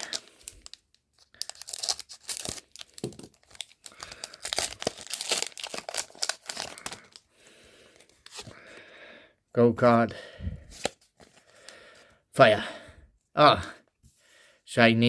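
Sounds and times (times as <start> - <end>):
foil pack tearing and crinkling: 0.0 - 7.2.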